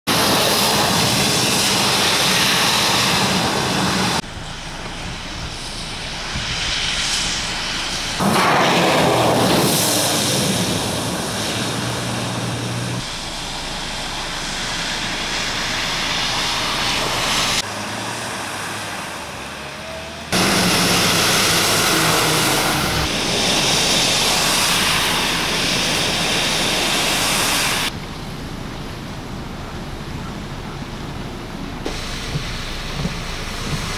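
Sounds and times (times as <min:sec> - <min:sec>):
traffic on wet roads: 0:00.1 - 0:33.9
heavy rain: 0:07.3 - 0:33.9.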